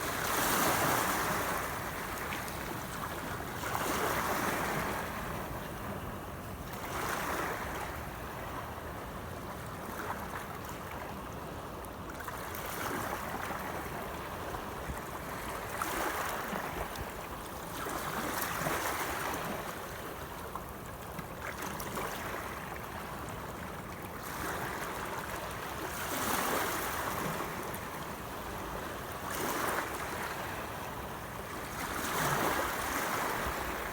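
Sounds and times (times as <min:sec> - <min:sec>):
sea waves splashing: 0:00.0 - 0:05.6, 0:29.3 - 0:33.9.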